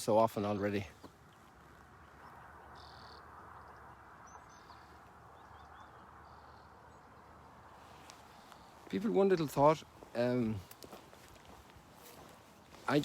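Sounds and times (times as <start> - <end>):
faint bird chirps: 0.4 - 8.9.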